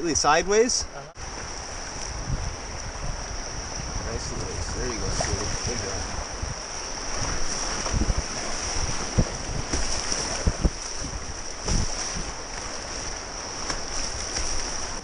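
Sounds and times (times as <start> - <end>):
river water rushing: 0.9 - 15.0
wind buffeting microphone: 1.2 - 15.0.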